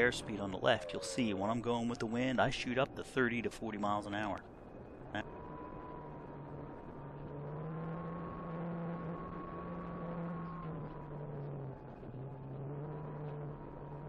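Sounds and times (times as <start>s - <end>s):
model airplane motor whine: 5.1s - 14.0s.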